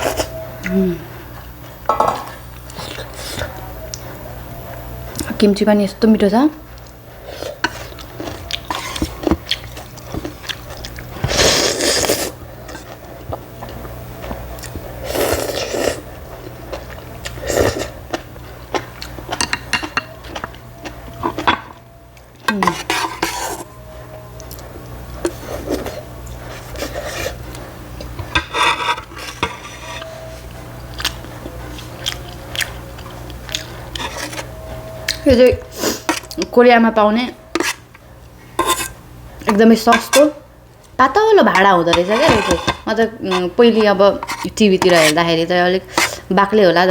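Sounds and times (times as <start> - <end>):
utensils clicking against dishes: 38.6 - 40.4, 41.5 - 45.3, 45.9 - 46.2.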